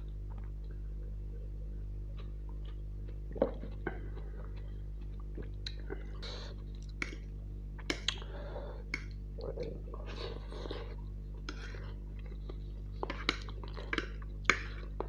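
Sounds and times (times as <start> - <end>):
wet chewing and lip smacks: 2.1 - 8.2.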